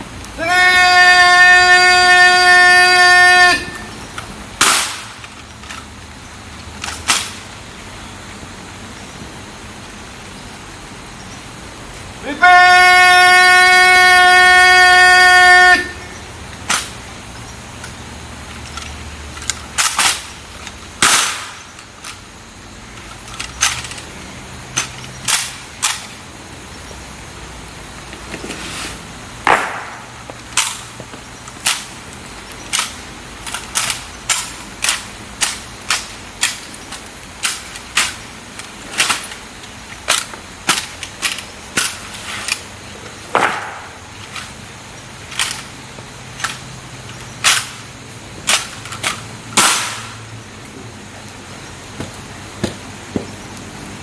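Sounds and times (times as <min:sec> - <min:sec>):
steady horn-like tone: 0:00.4 - 0:04.0, 0:12.3 - 0:16.3.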